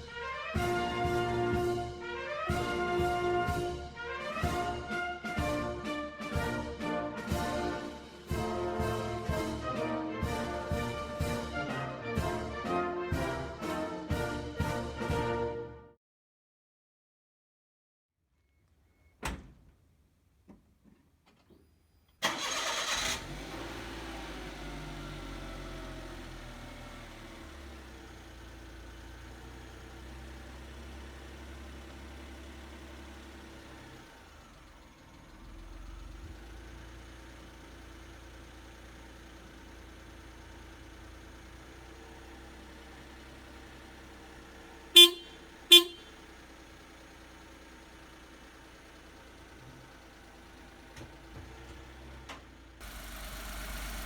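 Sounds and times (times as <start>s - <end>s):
car horn toots: 22.2s - 23.1s, 44.9s - 46.3s
engine cranking and idling: 22.2s - 54.0s.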